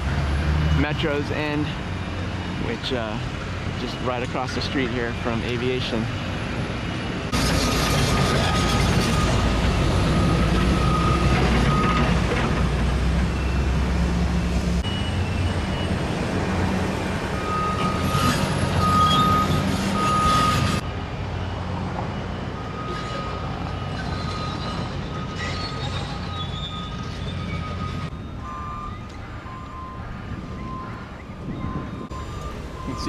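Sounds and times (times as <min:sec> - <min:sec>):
vehicle traffic rumble: 0:00.0 - 0:33.0
reversing alarm beeping: 0:07.3 - 0:16.5, 0:17.2 - 0:33.0.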